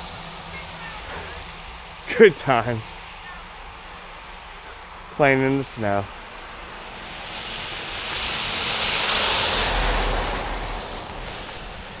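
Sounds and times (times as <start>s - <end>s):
vehicle rumble: 0.0s - 12.0s
tyres hissing through slush: 6.4s - 12.0s.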